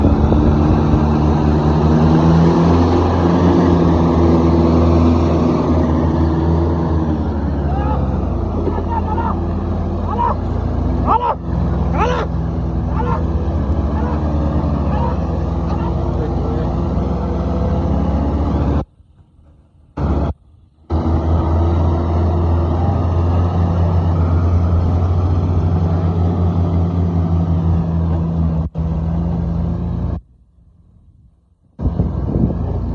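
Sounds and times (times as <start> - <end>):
diesel tractor engine under load: 0.0 - 32.9.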